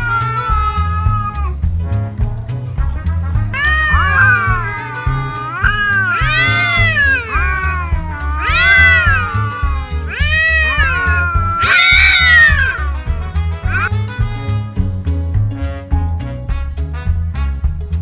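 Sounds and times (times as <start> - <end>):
cats yowling: 0.0 - 1.6, 3.5 - 13.9
music with bass beat: 0.0 - 18.0.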